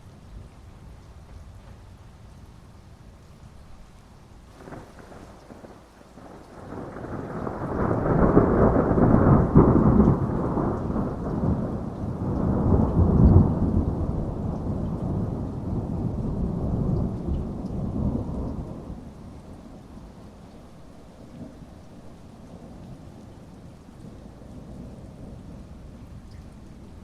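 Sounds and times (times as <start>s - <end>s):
steady rainfall: 0.0s - 27.0s
rolling thunder: 4.5s - 20.2s, 21.2s - 27.0s.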